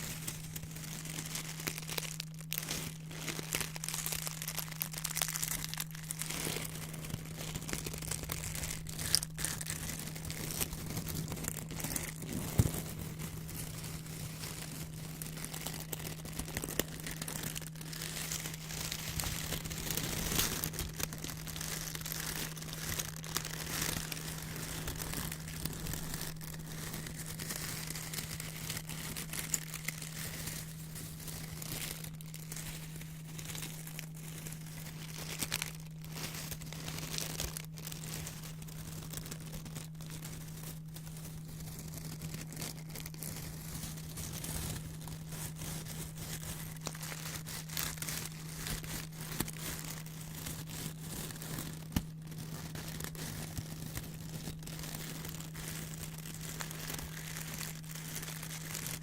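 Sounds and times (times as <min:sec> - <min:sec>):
low steady hum: 0:00.0 - 0:59.0
paper crinkling and rustling: 0:00.0 - 0:59.0.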